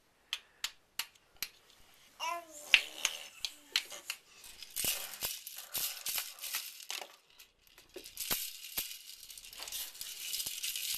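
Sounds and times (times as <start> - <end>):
shaken rattling: 4.4 - 10.9.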